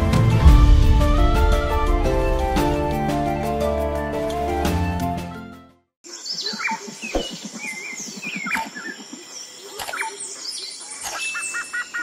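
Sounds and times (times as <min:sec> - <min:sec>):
birds chirping: 0:06.0 - 0:12.0.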